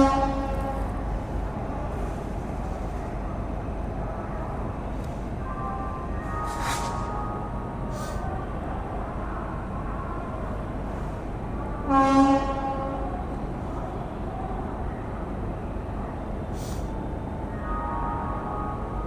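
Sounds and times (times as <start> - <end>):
train horn blast: 0.0 - 1.2, 5.8 - 8.0, 11.8 - 13.2
low rumble of station noise: 0.0 - 19.0.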